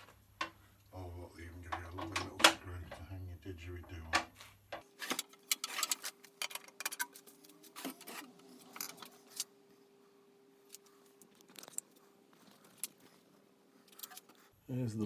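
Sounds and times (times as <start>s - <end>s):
faint steady hum: 0.0s - 15.0s
parts and packaging rattling: 4.7s - 9.5s, 10.7s - 13.1s.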